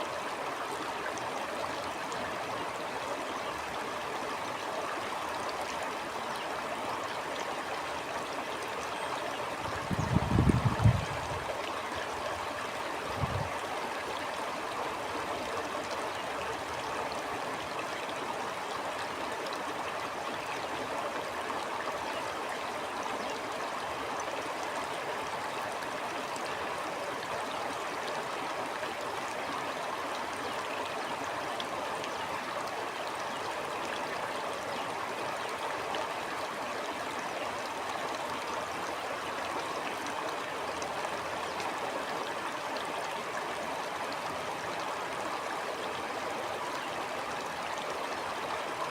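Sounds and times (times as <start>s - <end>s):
stream water gurgling: 0.0s - 48.9s.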